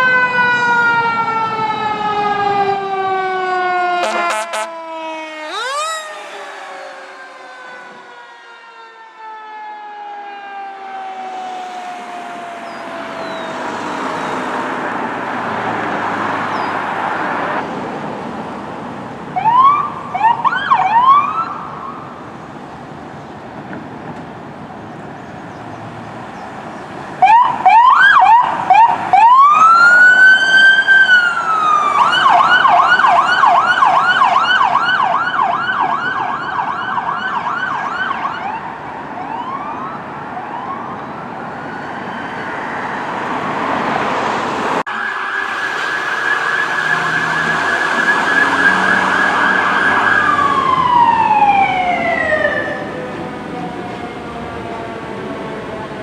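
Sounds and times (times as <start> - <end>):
siren wailing and yelping: 0.0 - 14.9, 19.4 - 22.2, 27.2 - 42.8, 44.9 - 54.6
siren winding down: 0.0 - 15.0, 27.2 - 38.6, 44.9 - 55.4
passing vehicle rumble: 0.0 - 56.0
short siren chirps: 4.0 - 4.7, 44.9 - 52.9.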